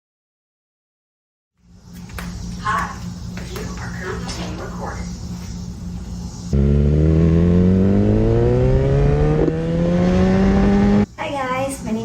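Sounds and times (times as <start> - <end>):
motorcycle engine accelerating: 6.5 - 11.1.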